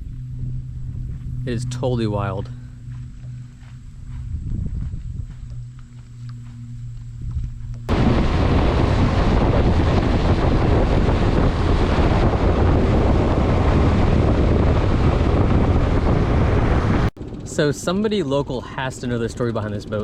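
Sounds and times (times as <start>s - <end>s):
wind rushing over microphone: 0.0s - 18.1s
low boat rumble: 0.0s - 20.0s.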